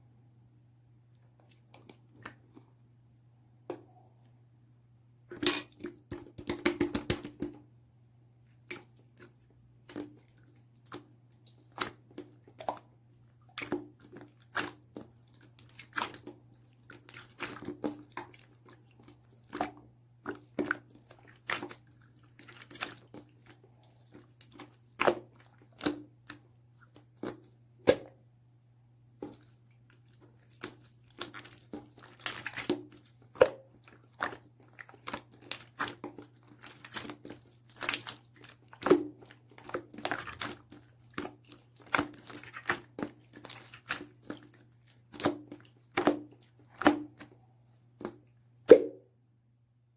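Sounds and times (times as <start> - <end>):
slime squishing with wet clicks: 8.5 - 28.1, 29.2 - 48.4.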